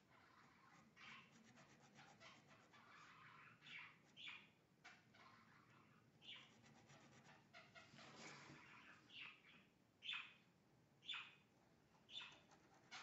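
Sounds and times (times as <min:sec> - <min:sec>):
pen scratching on paper: 0:00.7 - 0:02.7, 0:06.5 - 0:07.4
birds chirping: 0:02.2 - 0:06.6, 0:07.3 - 0:13.0.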